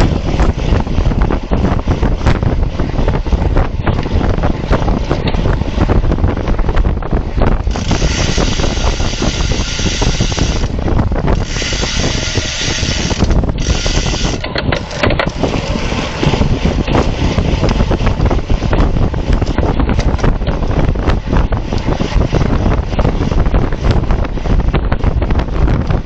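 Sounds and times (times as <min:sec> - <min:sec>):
wind buffeting microphone: 0:00.0 - 0:26.0
sharp clicks and knocks: 0:12.8 - 0:15.8.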